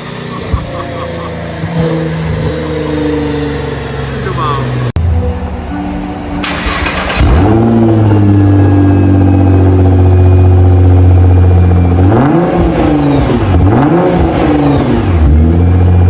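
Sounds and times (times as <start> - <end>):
car engine revving: 0.0 - 5.0, 6.4 - 16.0.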